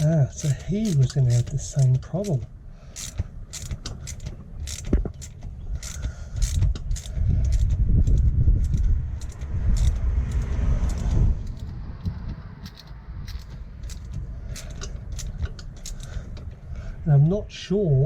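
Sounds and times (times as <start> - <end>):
metal tools clinking: 0.0 - 2.4, 12.6 - 16.5
loud low rumble: 5.7 - 15.5.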